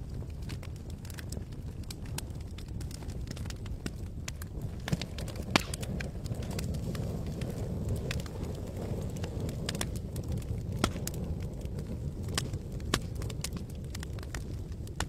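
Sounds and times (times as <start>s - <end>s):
campfire crackling and popping: 0.0s - 15.0s
low fire rumble: 0.0s - 15.0s.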